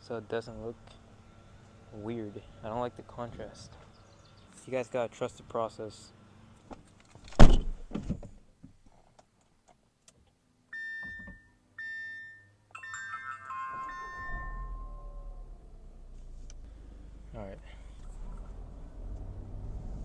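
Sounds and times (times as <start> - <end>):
car door shutting: 7.2 - 8.4, 13.8 - 16.6
short electronic beeps: 10.7 - 12.6, 13.8 - 15.3
electronic tones: 10.8 - 15.5
low rumble: 14.0 - 20.0.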